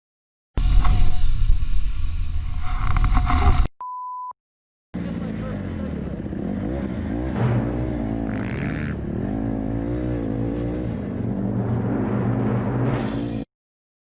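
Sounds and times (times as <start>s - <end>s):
motorcycle engine revving: 5.0s - 13.4s.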